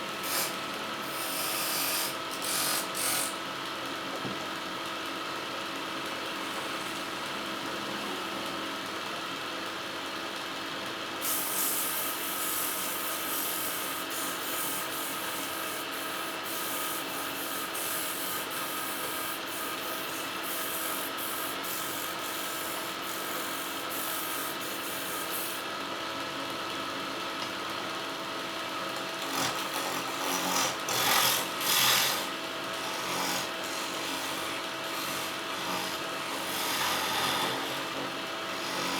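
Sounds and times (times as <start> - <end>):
tool scraping spinning wood: 0.0 - 3.4, 11.2 - 25.7, 28.9 - 38.9
lathe motor hum: 0.0 - 3.9, 12.8 - 38.9.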